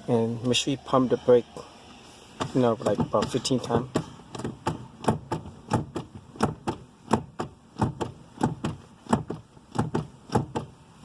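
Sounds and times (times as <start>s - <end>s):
brake pedal knocking: 2.3s - 11.0s.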